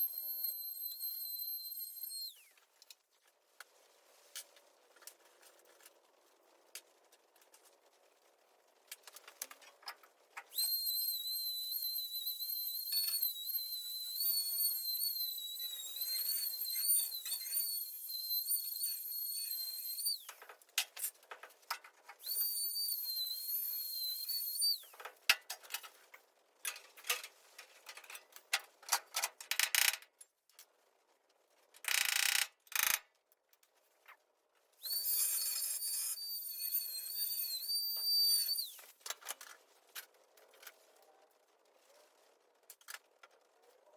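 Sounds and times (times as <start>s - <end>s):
angle grinder whining: 0.0s - 2.5s, 10.5s - 20.3s, 22.2s - 24.9s, 34.8s - 38.8s
short harsh bursts: 10.5s - 20.3s, 34.8s - 38.9s.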